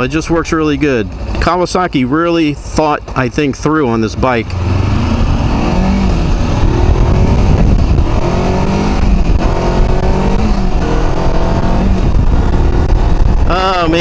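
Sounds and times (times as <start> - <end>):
motorcycle engine accelerating: 3.9 - 14.0
wind rumble on microphone: 4.6 - 14.0.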